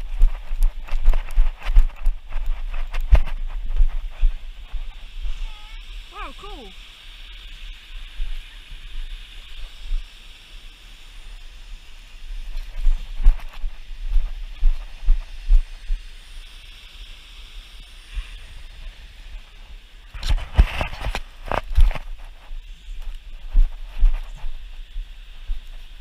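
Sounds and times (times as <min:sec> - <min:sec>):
footsteps and camera bumps: 0:00.0 - 0:05.4, 0:12.4 - 0:16.0, 0:20.1 - 0:25.9
steady high hiss: 0:00.0 - 0:26.0.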